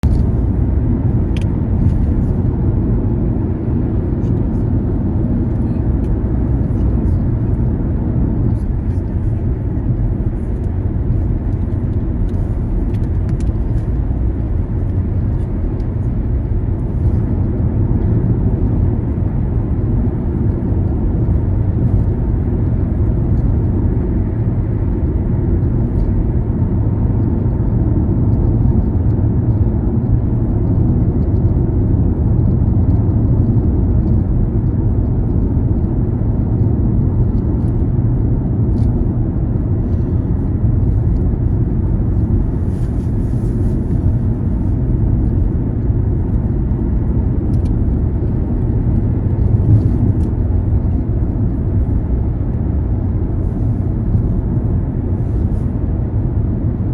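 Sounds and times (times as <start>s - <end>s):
car driving rumble: 0.0s - 56.9s.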